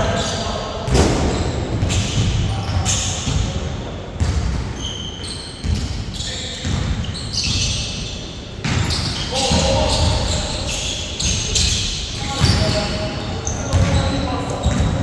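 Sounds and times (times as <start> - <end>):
shoe squeaks: 0.0 - 0.6, 4.2 - 15.0.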